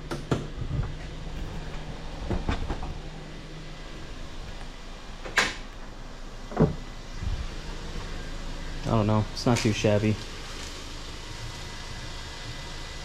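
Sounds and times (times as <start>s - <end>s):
car hood clicks and knocks: 0.1s - 3.1s.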